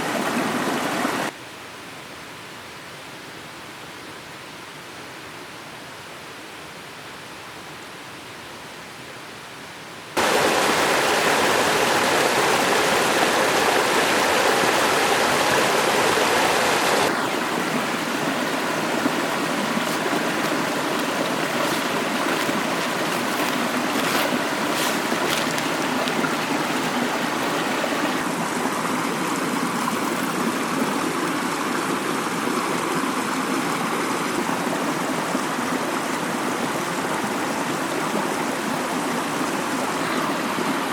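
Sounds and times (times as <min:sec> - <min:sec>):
stream water rushing: 0:00.0 - 0:01.4, 0:10.2 - 0:40.9.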